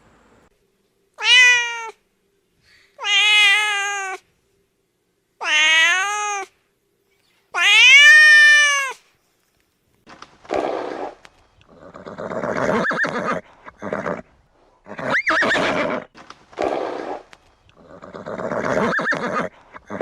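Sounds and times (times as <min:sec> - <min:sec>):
cat meowing: 0:01.2 - 0:02.0, 0:03.0 - 0:04.2, 0:05.4 - 0:06.5, 0:07.6 - 0:09.0.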